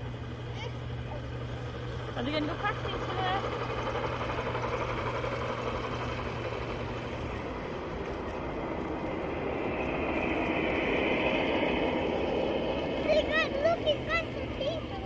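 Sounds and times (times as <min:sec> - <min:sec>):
model train wheels rumbling on track: 0:00.0 - 0:15.0.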